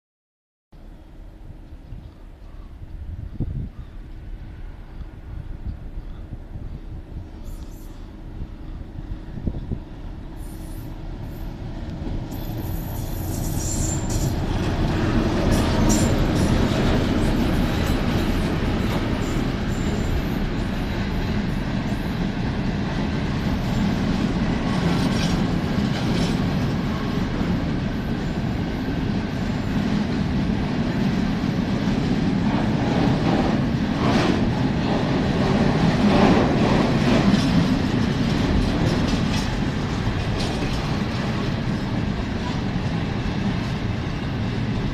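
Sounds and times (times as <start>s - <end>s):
train wheels rumbling on rail: 0.8s - 44.9s
thin high wheel squeals: 12.4s - 14.4s
wheels clicking over rail joints: 36.0s - 43.0s.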